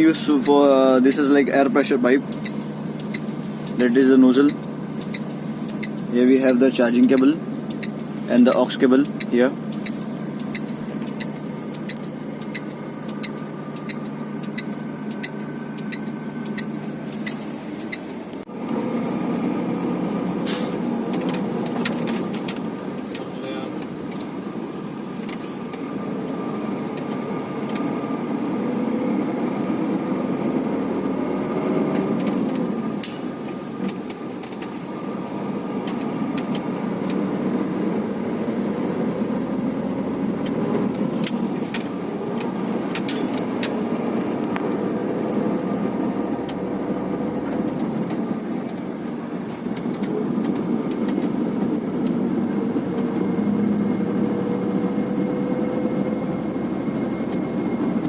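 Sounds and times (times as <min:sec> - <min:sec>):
truck engine rumbling: 0:00.0 - 0:58.0.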